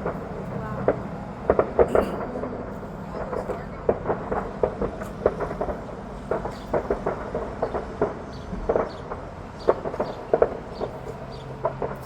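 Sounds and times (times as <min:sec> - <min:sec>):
fireworks popping and cracking: 0:00.0 - 0:12.0.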